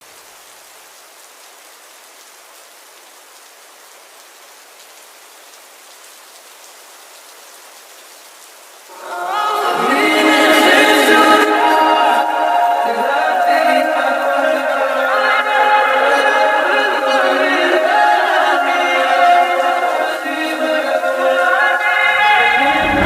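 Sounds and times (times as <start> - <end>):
rain hissing: 0.0 - 23.0
sped-up wordless singing: 8.9 - 23.0.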